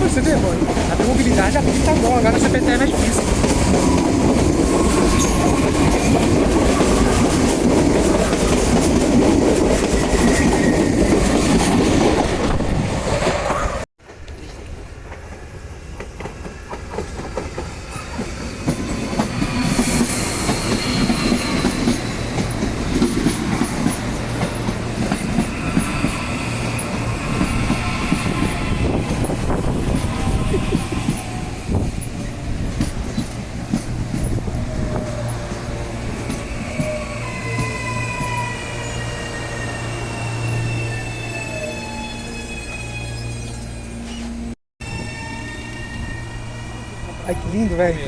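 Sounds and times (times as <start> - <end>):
train rumbling on track: 0.0 - 48.0
high wheel squeal: 4.7 - 6.2, 17.8 - 32.4, 34.2 - 48.0.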